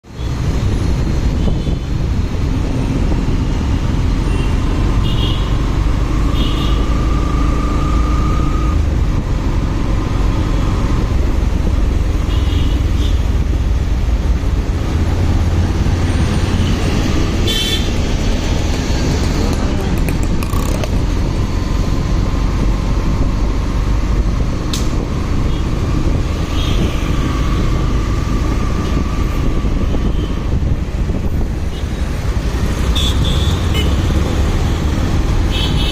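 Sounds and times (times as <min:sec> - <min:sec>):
wind rumble on microphone: 0:00.2 - 0:04.8, 0:06.8 - 0:35.9
motorcycle engine: 0:02.8 - 0:24.5.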